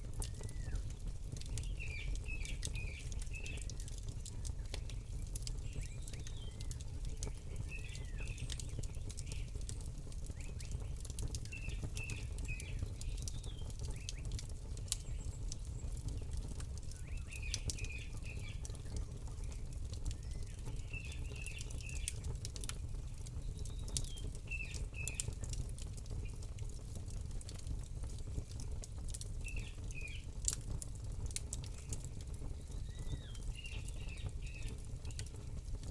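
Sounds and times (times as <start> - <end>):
campfire crackling and popping: 0.0 - 35.9
small bird chirping: 32.6 - 35.3.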